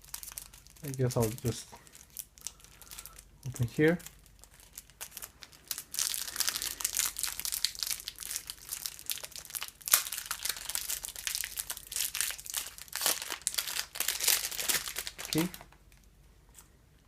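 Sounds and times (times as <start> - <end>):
packaging crinkling: 0.0 - 16.1.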